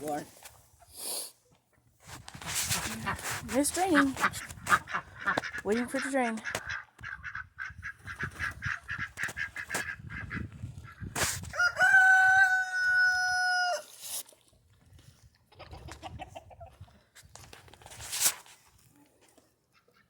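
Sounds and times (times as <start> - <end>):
fowl calls: 2.9 - 11.1
rooster crowing: 11.5 - 13.9.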